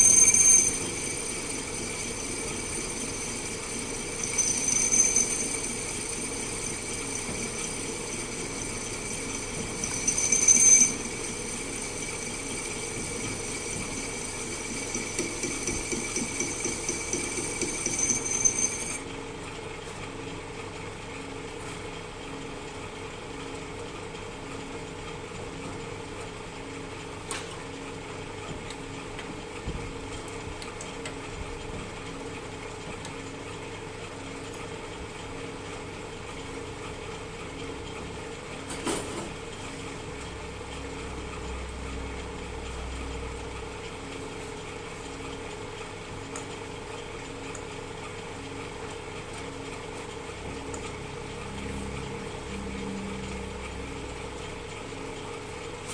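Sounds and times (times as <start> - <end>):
metal lathe whirring: 0.0 - 19.1.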